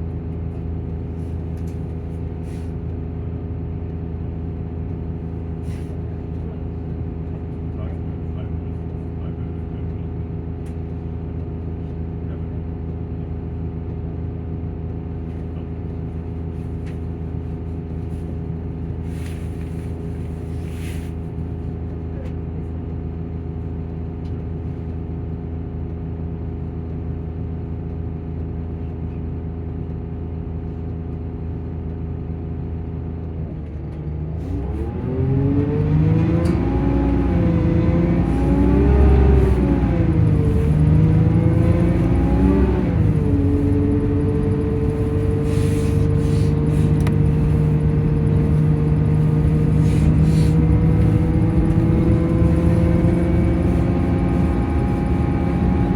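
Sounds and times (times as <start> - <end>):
diesel engine droning: 0.0 - 55.9
cooling fan running: 34.5 - 55.9.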